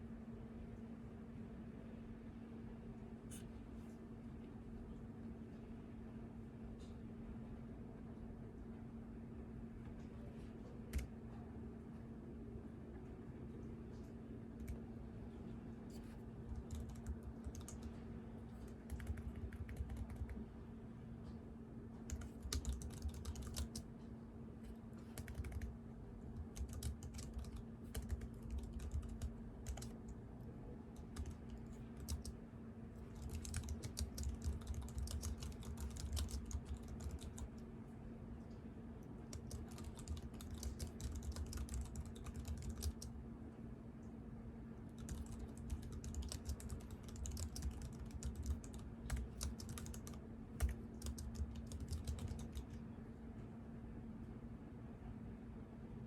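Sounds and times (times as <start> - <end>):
steady low hum: 0.0 - 56.0
computer keyboard typing: 16.4 - 20.4, 22.1 - 23.8, 25.0 - 25.8, 26.4 - 30.2, 30.9 - 32.4, 33.0 - 37.6, 39.3 - 43.1, 45.0 - 52.8.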